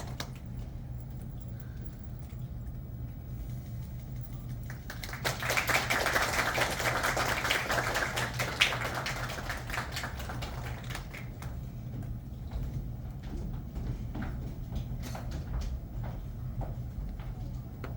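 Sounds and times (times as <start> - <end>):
audience applause: 4.6 - 11.6.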